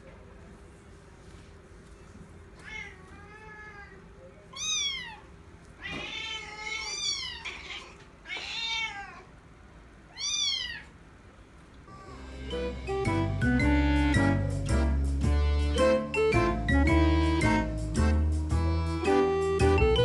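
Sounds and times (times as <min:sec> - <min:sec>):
cat meowing: 0:02.6 - 0:09.3, 0:10.1 - 0:11.0.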